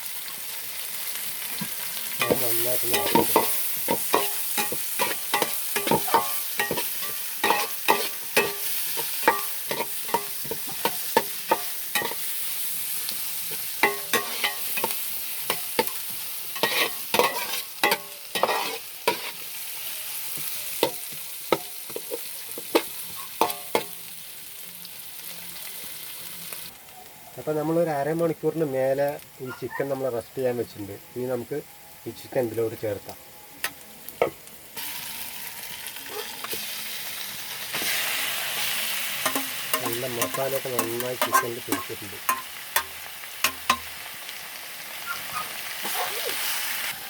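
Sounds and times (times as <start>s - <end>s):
onions sizzling in a pan: 0.0s - 47.0s
utensil knocking and scraping pan: 39.3s - 42.4s.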